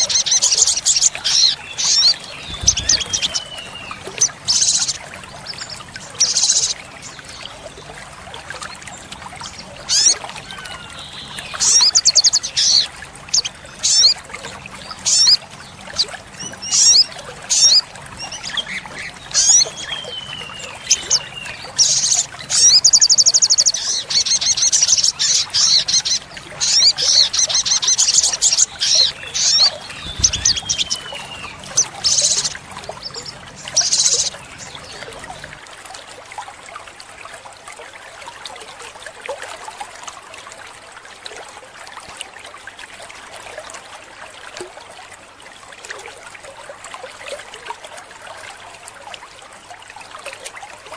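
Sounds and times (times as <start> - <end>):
bird chirping and trilling: 0.0 - 6.8, 9.4 - 14.2, 14.8 - 35.5.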